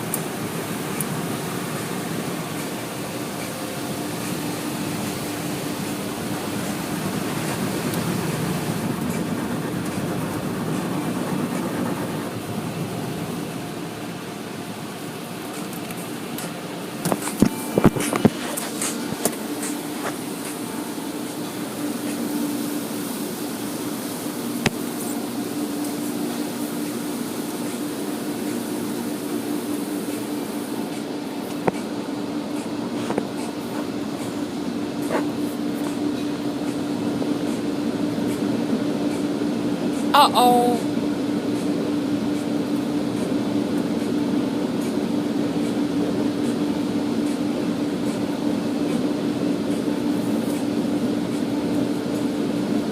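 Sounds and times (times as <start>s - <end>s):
water spray hissing: 0.0s - 12.5s, 17.1s - 34.4s
car wash machinery rumble: 0.0s - 52.9s.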